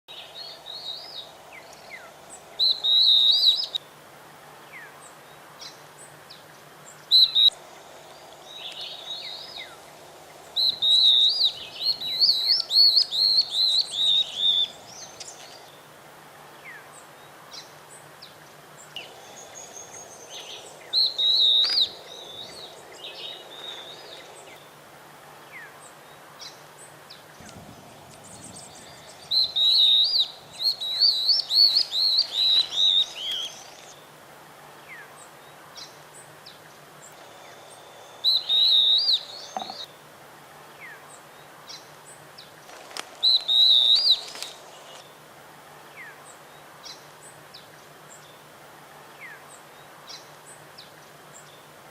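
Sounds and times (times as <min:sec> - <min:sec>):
faint bird chirps: 0:00.1 - 0:03.8, 0:04.7 - 0:15.8, 0:16.6 - 0:24.8, 0:25.5 - 0:34.1, 0:34.9 - 0:40.0, 0:43.2 - 0:45.1
birds singing rapid high notes: 0:10.4 - 0:15.4.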